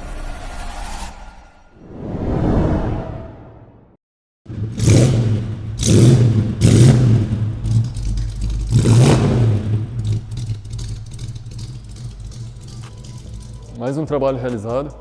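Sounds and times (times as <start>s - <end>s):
car engine revving and idling: 4.5s - 13.8s.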